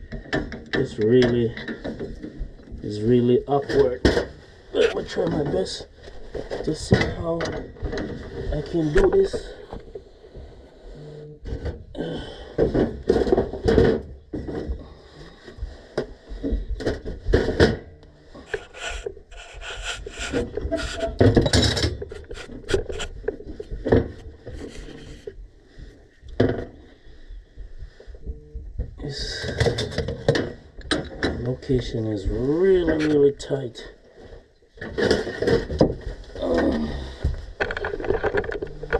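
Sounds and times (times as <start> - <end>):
hand tools scraping on metal: 18.4 - 23.1.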